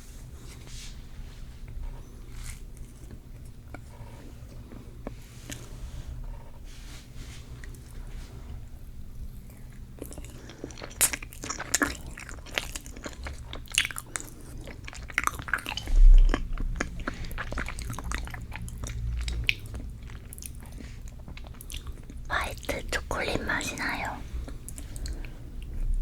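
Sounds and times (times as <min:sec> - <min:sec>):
biting and chewing cake: 0:09.2 - 0:26.0.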